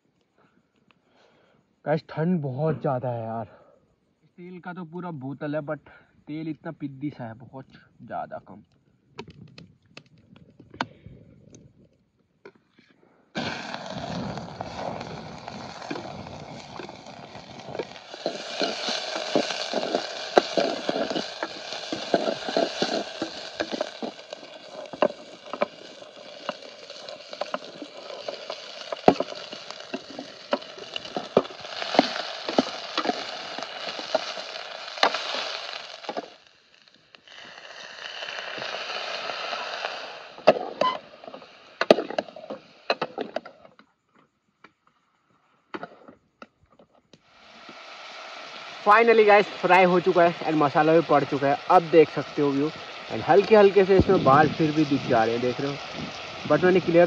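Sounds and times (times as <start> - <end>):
food sizzling in hot oil: 13.4 - 43.3, 47.2 - 57.0
oil popping and crackling: 13.4 - 43.6, 47.2 - 57.0.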